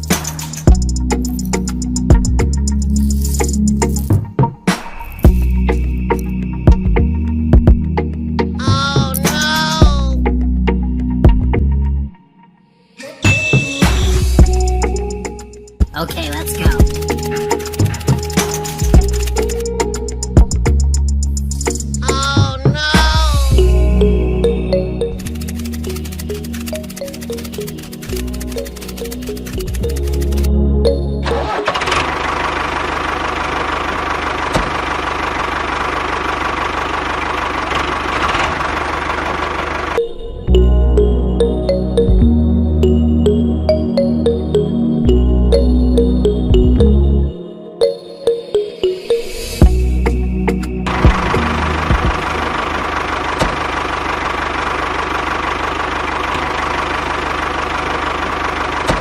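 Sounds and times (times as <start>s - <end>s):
small motor buzzing rattle: 16.5s - 20.3s, 25.2s - 30.5s.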